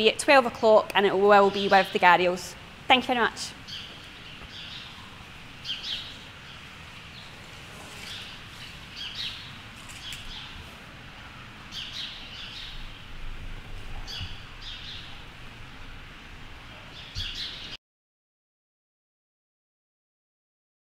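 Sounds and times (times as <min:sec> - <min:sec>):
low background rumble: 0:00.0 - 0:17.4
small birds chirping: 0:01.4 - 0:15.9, 0:16.6 - 0:17.8.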